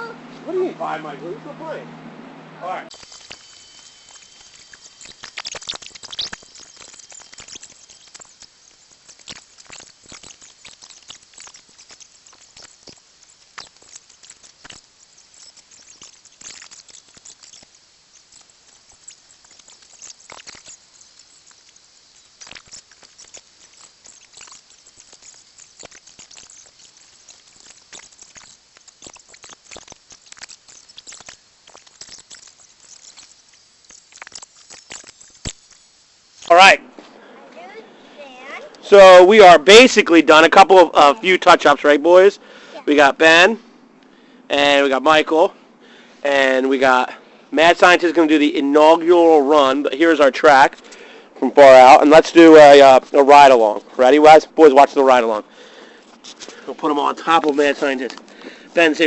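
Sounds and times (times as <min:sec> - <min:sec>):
faint outdoor hiss: 0:00.0 - 0:59.0
rocks and soil moved by hand: 0:55.1 - 0:59.0.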